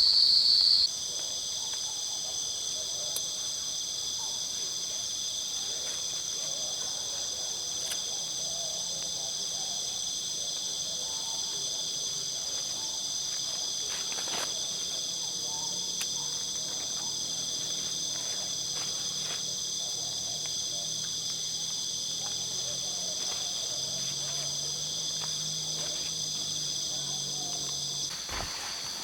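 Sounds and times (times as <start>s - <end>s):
insects trilling: 0.0s - 29.0s
brief crackle: 28.1s - 29.0s.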